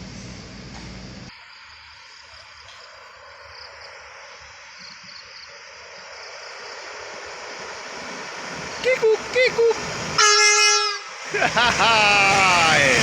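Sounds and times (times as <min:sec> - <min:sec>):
train rumble: 0:00.0 - 0:01.4, 0:05.7 - 0:13.0
steady hiss: 0:00.0 - 0:13.0
insect buzz: 0:01.3 - 0:07.2.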